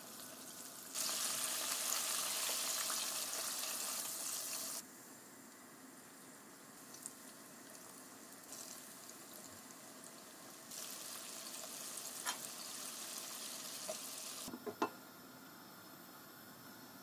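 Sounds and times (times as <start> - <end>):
food sizzling in hot oil: 0.0 - 4.8, 6.8 - 14.9.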